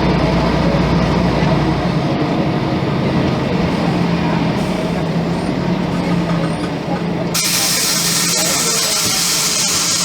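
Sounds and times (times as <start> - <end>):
bus diesel engine running: 0.0 - 10.0.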